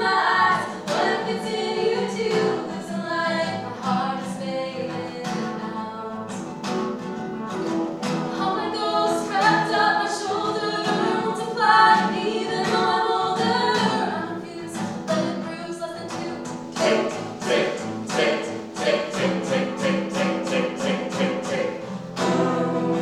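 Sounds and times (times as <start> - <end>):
voices singing in harmony: 0.0 - 6.5, 8.3 - 23.0
rhythmic accompaniment: 16.1 - 23.0.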